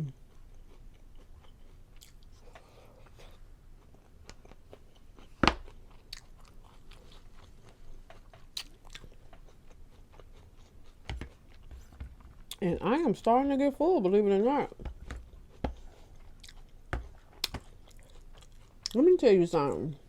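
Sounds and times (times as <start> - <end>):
person chewing: 0.1 - 12.6, 14.7 - 19.0.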